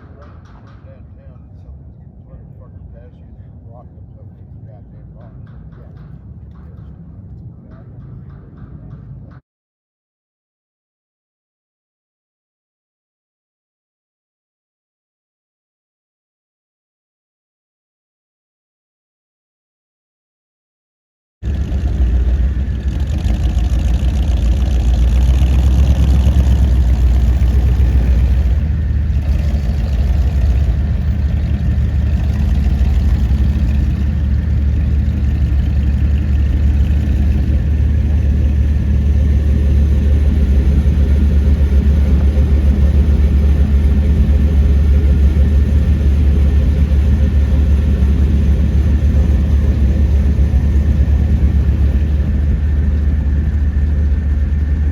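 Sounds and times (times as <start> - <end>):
car engine idling: 21.4 - 54.9.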